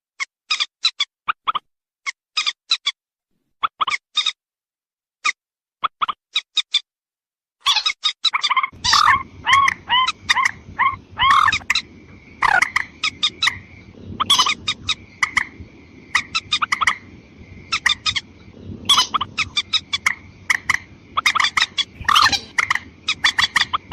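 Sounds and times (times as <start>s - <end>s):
short arched bird calls: 7.6s - 23.9s.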